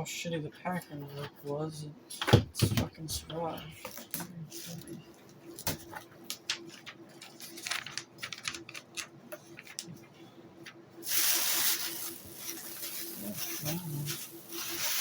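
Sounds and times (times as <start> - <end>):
faint steady hum: 0.0 - 15.0
packing material rustling: 5.6 - 9.9, 11.0 - 15.0
loud hissy rustle: 11.0 - 15.0.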